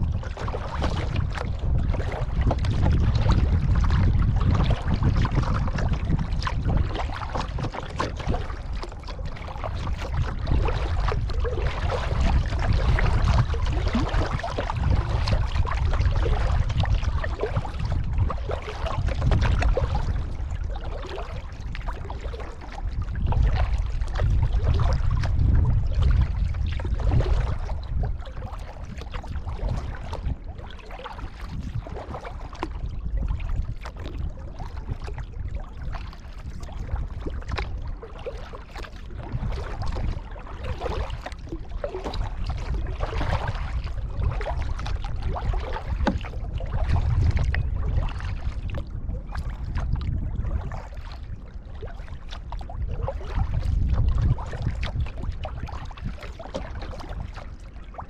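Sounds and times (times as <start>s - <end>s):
paddle blades splashing: 0.0s - 58.0s
water lapping against hull: 0.0s - 58.0s
low rumble: 21.5s - 30.5s.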